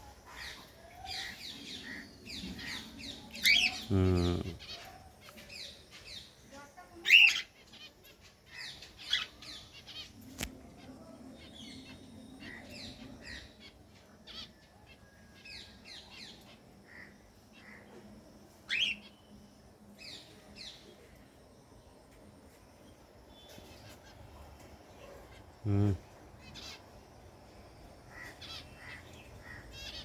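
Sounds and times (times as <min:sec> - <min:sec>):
birds chirping: 0:00.0 - 0:21.2, 0:22.9 - 0:30.0
bird squawking: 0:03.4 - 0:04.6.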